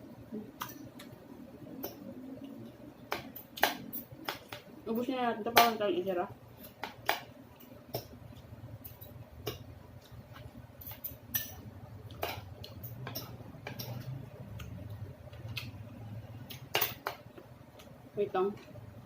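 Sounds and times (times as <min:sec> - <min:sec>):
cutlery clinking against bowl: 0:10.4 - 0:14.2.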